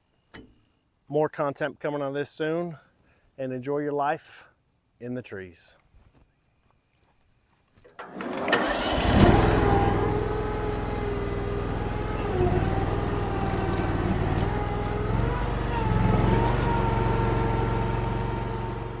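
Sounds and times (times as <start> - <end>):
small gas engine running: 8.0 - 19.0.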